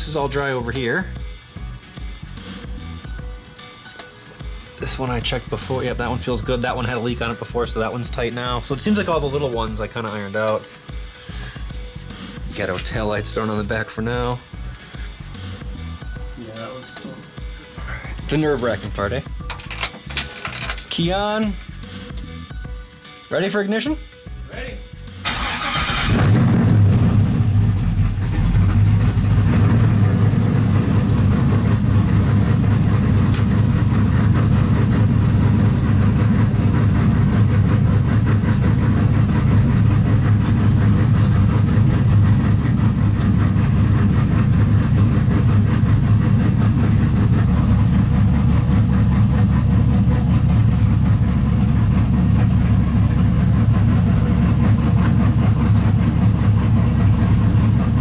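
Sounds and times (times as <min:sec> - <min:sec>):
engine starting and idling: 0:25.1 - 0:58.0.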